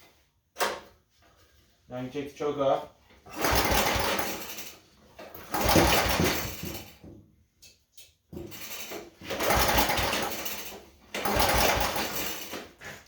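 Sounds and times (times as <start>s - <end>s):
engine cranking with pull-starter: 3.3s - 7.0s, 8.4s - 12.8s.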